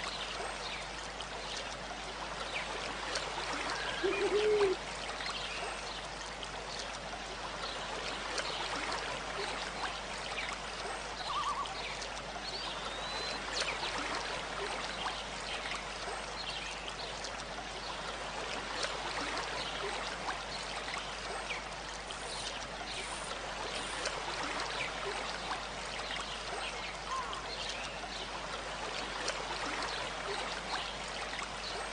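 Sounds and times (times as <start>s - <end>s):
water trickling and splashing: 0.0s - 31.9s
faint bird calls: 3.7s - 4.8s, 11.3s - 11.8s, 27.1s - 27.5s.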